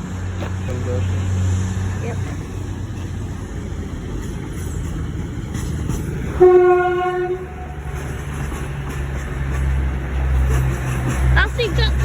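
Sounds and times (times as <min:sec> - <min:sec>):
train running rumble: 0:00.0 - 0:12.0
train horn: 0:06.4 - 0:08.0.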